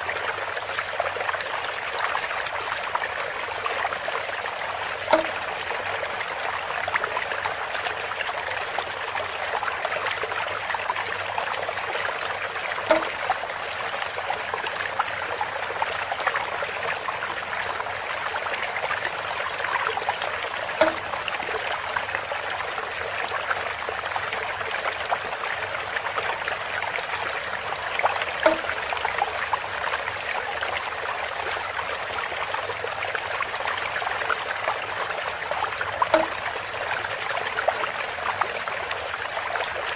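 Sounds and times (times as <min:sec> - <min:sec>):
water trickling through bamboo spout: 0:00.0 - 0:39.9
hollow bamboo knock: 0:05.1 - 0:05.4, 0:12.9 - 0:13.2, 0:20.8 - 0:21.6, 0:28.4 - 0:28.8, 0:36.1 - 0:36.5.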